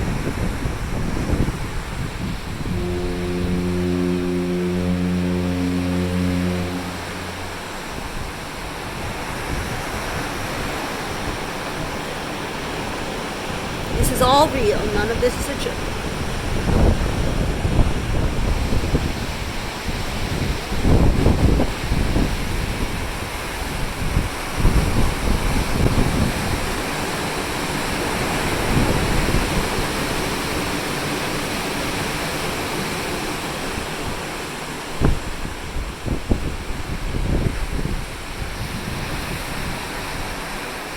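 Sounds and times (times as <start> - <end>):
ocean waves rushing: 0.0 - 20.7
wind: 0.0 - 40.9
low steady hum: 2.6 - 9.2.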